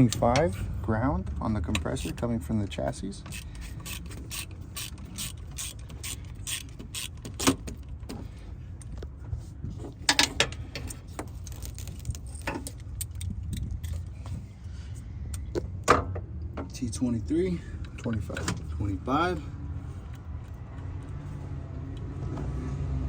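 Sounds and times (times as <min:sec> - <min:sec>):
ratchet clicking: 0:03.3 - 0:07.6.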